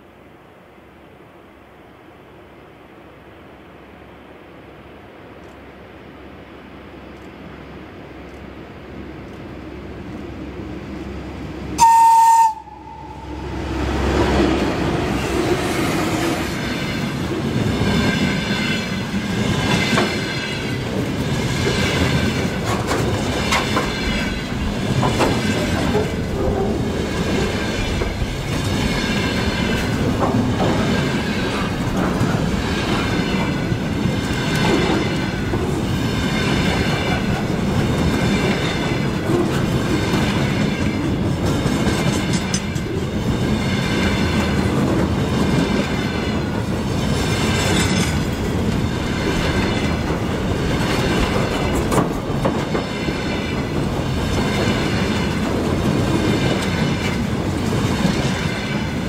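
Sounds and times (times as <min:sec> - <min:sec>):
train wheels rumbling on rails: 0:04.9 - 0:59.0
short high train horn: 0:11.8 - 0:13.6
wheels clacking over rail joints: 0:13.7 - 0:59.0.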